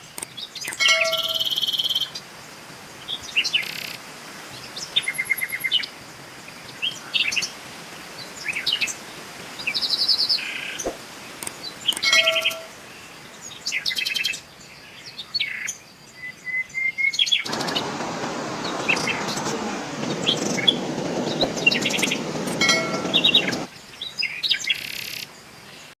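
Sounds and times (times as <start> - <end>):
songbirds chirping: 17.5 - 23.7
steady hiss: 17.5 - 23.7.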